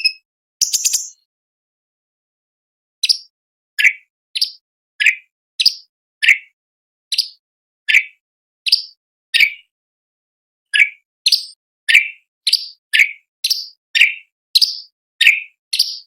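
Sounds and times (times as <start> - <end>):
bird calling sharp notes: 0.0 - 1.2.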